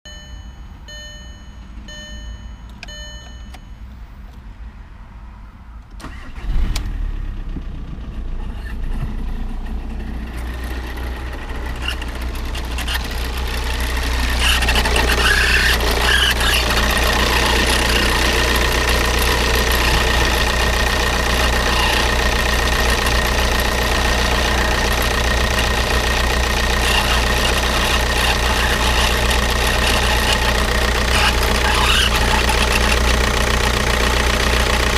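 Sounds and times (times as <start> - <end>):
short beeps: 0.0 - 4.0
diesel engine running: 6.0 - 34.9.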